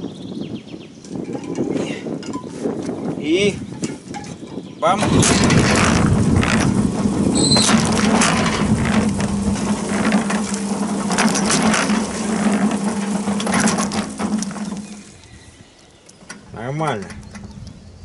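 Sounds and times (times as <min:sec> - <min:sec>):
concrete mixer motor hum: 0:04.9 - 0:15.5
drum and gears clattering: 0:05.0 - 0:15.1.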